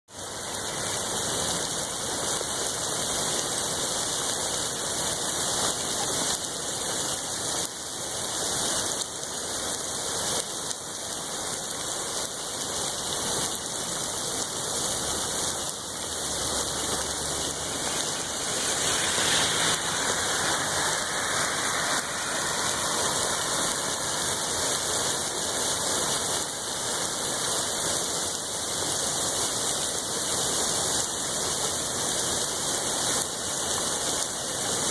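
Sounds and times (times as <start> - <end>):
steady rain: 0.1 - 34.9.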